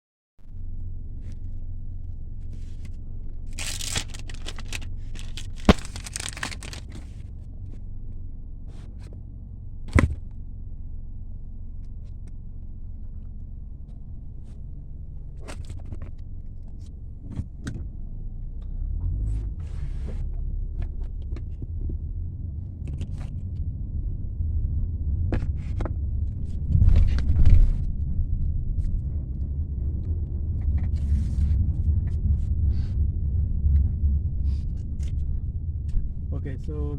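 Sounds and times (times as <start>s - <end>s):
low rumble: 0.4s - 36.9s
packaging tearing and crinkling: 3.5s - 7.1s.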